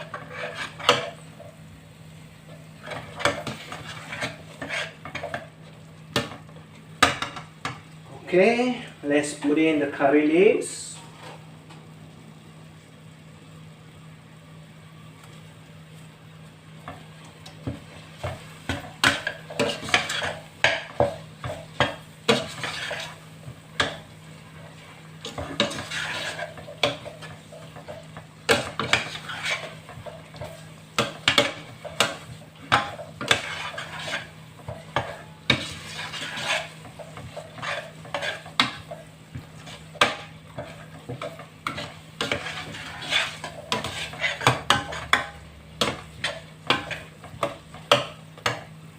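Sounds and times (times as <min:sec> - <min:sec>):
spoon stirring in cooking pot: 0:00.0 - 0:01.6, 0:02.5 - 0:06.4, 0:16.8 - 0:48.8.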